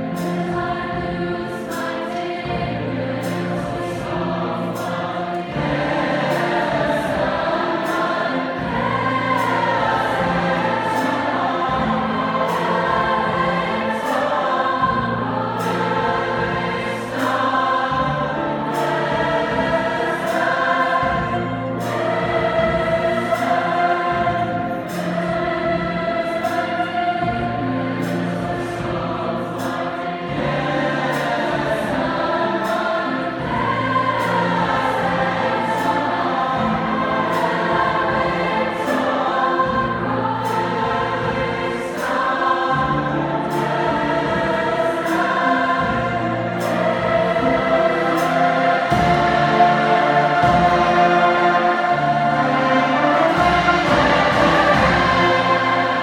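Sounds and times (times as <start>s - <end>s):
choir singing in harmony: 0.0s - 56.0s
jazz band playing: 46.1s - 56.0s.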